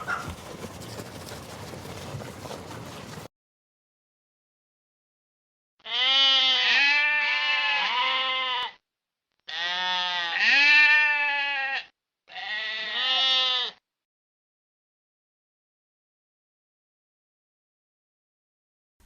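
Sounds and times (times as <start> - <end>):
sheep bleating: 0.0 - 3.2, 5.8 - 8.8, 9.5 - 13.8.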